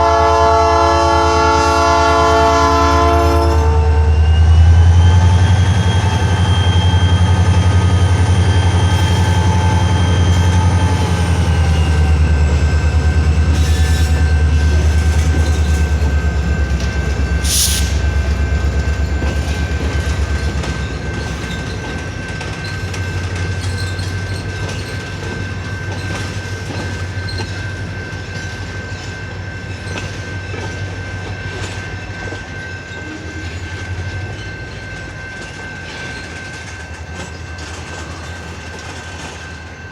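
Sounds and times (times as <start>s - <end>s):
train cars clacking over rail joints: 7.2s - 39.7s.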